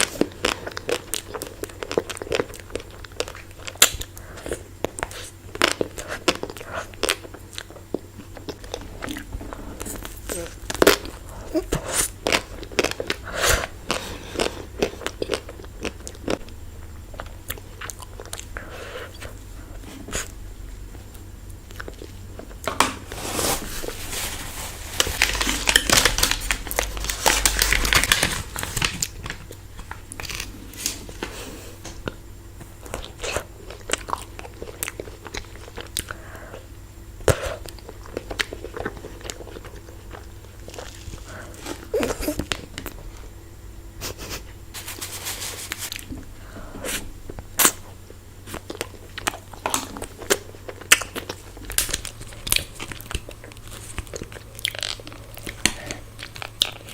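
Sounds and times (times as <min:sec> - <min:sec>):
crunching bites and chewing: 0:00.0 - 0:43.4, 0:44.8 - 0:56.9.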